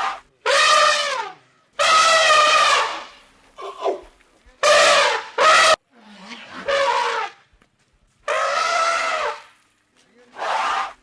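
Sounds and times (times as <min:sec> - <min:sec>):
animal crying: 0:01.8 - 0:07.3, 0:08.3 - 0:09.5.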